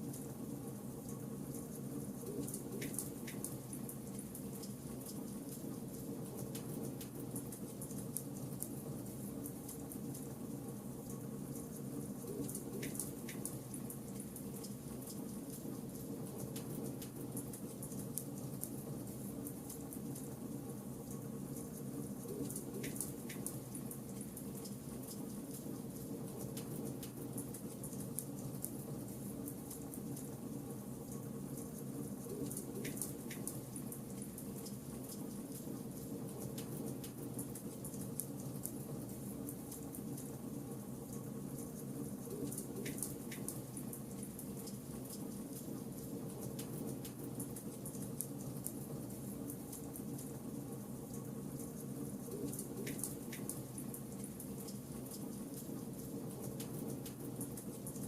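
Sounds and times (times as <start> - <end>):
low background noise: 0.0 - 58.0
fire crackles and pops: 32.4 - 40.3, 42.2 - 50.4, 51.8 - 58.0.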